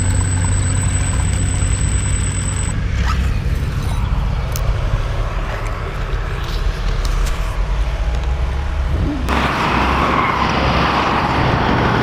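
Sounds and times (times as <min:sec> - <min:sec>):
low steady rumble: 0:00.0 - 0:09.4.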